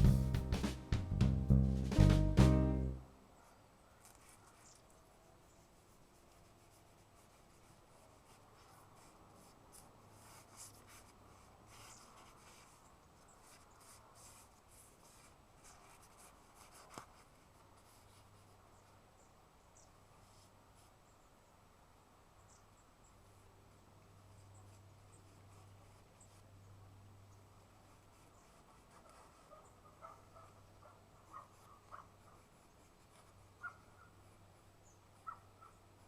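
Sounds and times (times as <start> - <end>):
music track with drums: 0.0 - 3.0.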